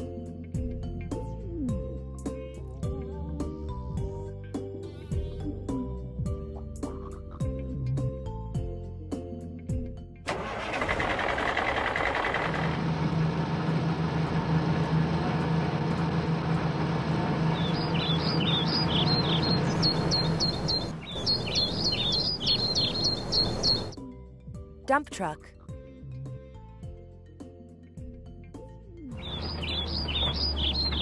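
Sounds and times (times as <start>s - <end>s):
truck engine humming: 10.3s - 24.0s, 29.1s - 31.0s
birds chirping: 17.1s - 24.0s, 29.2s - 31.0s.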